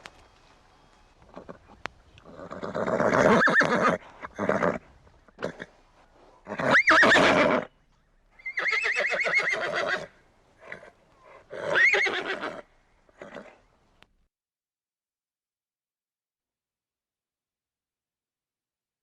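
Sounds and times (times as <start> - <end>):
horse whinnying: 2.2 - 5.7, 6.5 - 7.7, 8.4 - 10.9, 11.5 - 12.6, 13.2 - 13.6.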